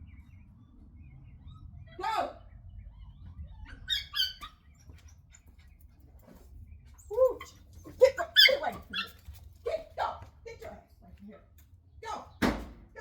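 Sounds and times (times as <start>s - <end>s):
puppies barking: 3.0s - 4.8s, 7.4s - 9.2s.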